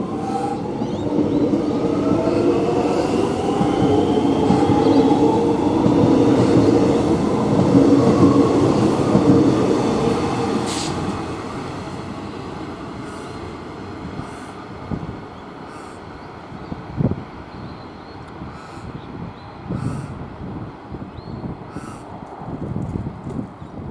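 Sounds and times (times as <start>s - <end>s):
rail rumble: 0.0s - 17.6s.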